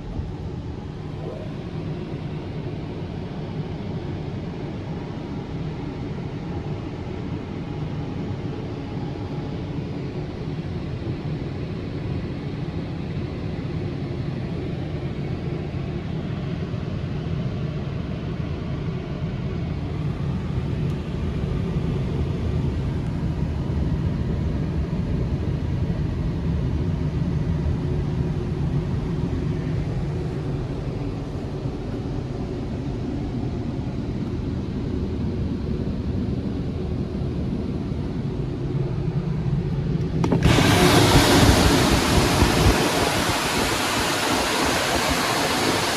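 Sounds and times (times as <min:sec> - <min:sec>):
car wash machine rumbling: 0:19.8 - 0:33.8, 0:39.0 - 0:45.9
water spray hissing: 0:40.2 - 0:45.9.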